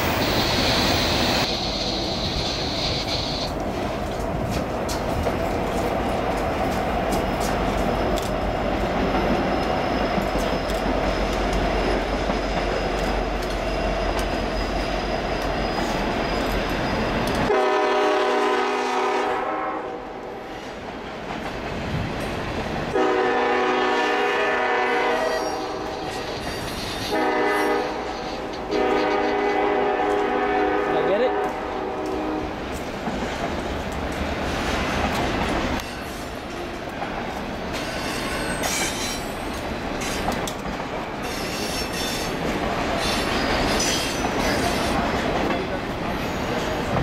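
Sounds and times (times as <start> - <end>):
freight train rumbling past: 0.0 - 47.0
locomotive air horn blasts: 17.4 - 20.2, 23.0 - 25.9, 27.1 - 32.5.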